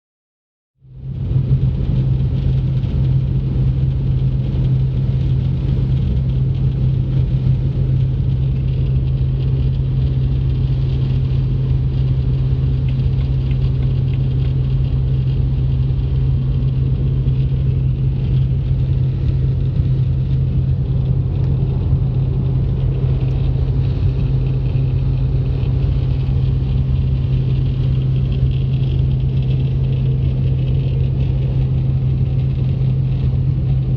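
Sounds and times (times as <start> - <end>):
car cabin drone: 0.8 - 33.9
wind noise around windscreen: 0.9 - 33.9
road noise: 1.0 - 33.9.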